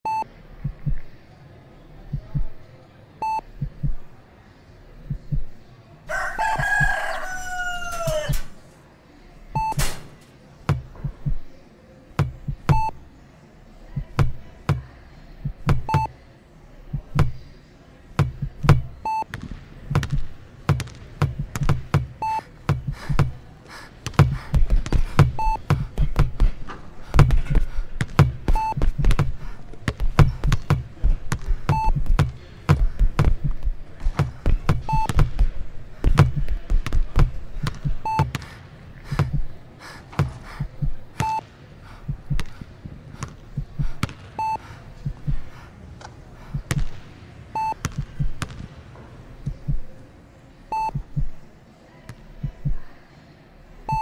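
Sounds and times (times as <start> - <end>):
heart monitor beeps: 0.0 - 1.1, 2.1 - 2.6, 3.2 - 4.0, 5.1 - 5.6, 9.5 - 9.9, 10.7 - 11.5, 12.2 - 13.0, 14.0 - 16.1, 16.9 - 17.4, 18.2 - 19.3, 21.2 - 23.4, 24.2 - 29.5, 30.1 - 38.4, 39.1 - 39.6, 40.4 - 41.4, 43.5 - 45.5, 47.6 - 48.4, 49.4 - 50.0, 50.7 - 51.4
low heartbeat-like thumps: 0.6 - 1.1, 2.1 - 2.6, 3.6 - 4.1, 5.1 - 5.6, 10.7 - 11.4, 12.2 - 12.9, 15.4 - 16.1, 27.2 - 38.3, 39.1 - 39.6, 40.4 - 41.2, 42.1 - 42.5, 43.5 - 44.0, 45.0 - 45.5, 48.0 - 48.4, 49.5 - 49.9, 50.9 - 51.4, 52.4 - 52.8.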